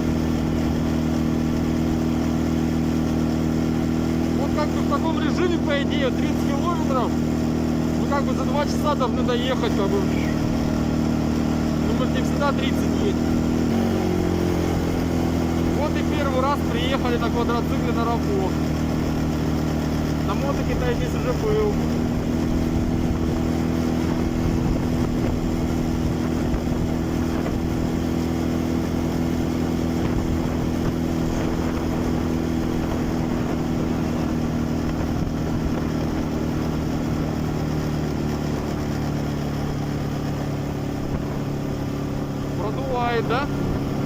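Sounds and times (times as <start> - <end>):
quad bike engine running: 0.0 - 44.0
wind noise on microphone: 21.9 - 38.8, 40.4 - 42.2.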